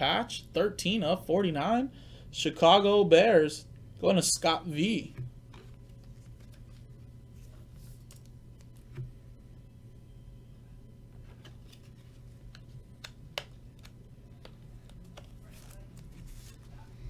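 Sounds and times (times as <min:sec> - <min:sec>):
low hum: 0:03.6 - 0:17.0
trading cards clicking: 0:12.5 - 0:15.9.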